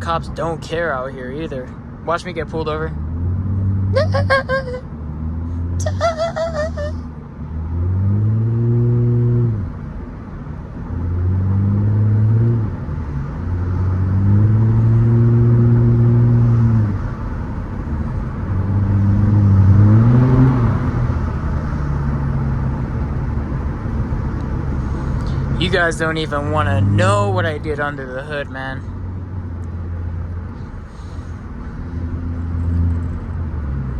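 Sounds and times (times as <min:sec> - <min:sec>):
car exhaust revving: 0:13.4 - 0:27.8.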